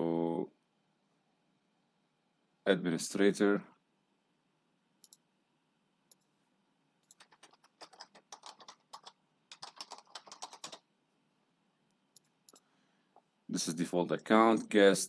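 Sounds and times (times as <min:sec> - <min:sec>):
computer keyboard typing: 0:07.0 - 0:10.9.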